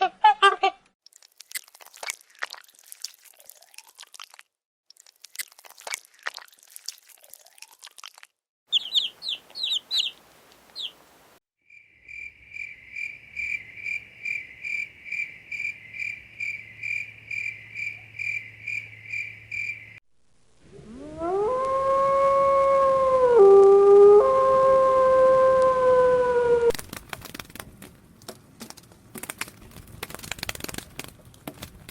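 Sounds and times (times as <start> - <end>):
high animal chirps: 8.7 - 10.2, 10.8 - 11.0
dog howling: 20.7 - 26.7
crunching clicks: 26.7 - 31.9.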